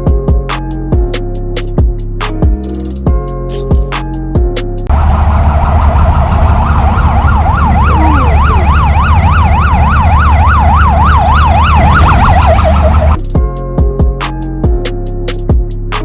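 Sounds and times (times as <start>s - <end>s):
siren yelping: 4.9s - 13.2s.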